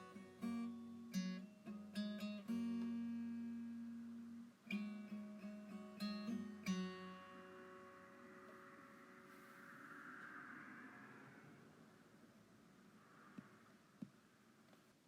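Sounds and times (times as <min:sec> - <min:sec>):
strummed acoustic guitar chords: 0:00.0 - 0:09.5.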